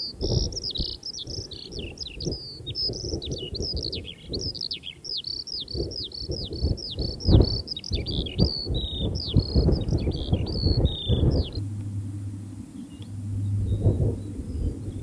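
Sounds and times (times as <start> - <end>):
songbird singing: 0.0 - 15.0
low uneven rumble: 9.1 - 15.0.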